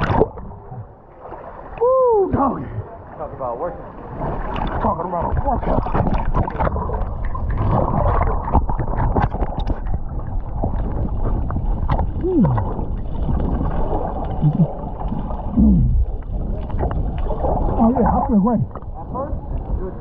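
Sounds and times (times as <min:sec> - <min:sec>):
water splashing from swimmers: 0:00.0 - 0:20.0
short falling vocal sounds: 0:15.6 - 0:16.0.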